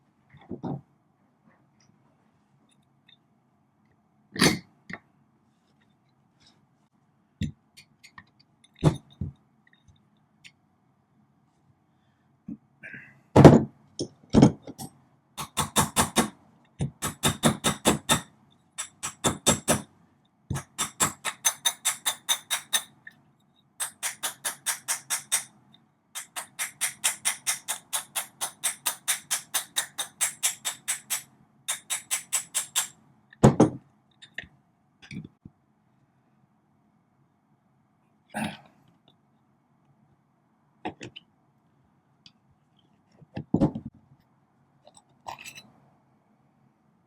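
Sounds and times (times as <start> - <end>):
rapid metallic ratchet clicks: 15.4 - 16.3, 17.0 - 18.2, 18.8 - 19.8, 20.5 - 22.9, 23.8 - 25.5, 26.2 - 33.0.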